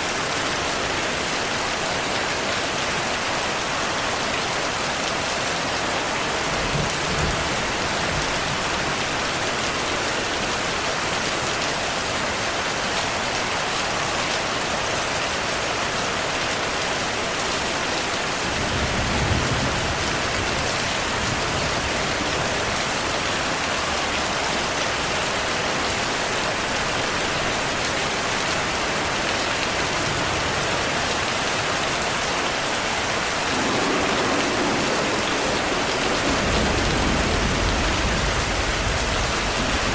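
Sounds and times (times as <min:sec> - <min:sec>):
steady rainfall: 0:00.0 - 0:39.9
low thunder rumbles: 0:33.0 - 0:39.9.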